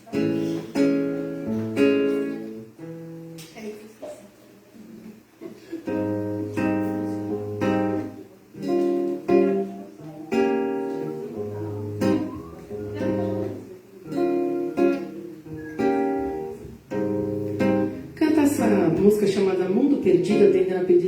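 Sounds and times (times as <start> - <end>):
acoustic guitar strumming chords: 0.0 - 3.5, 5.9 - 21.0.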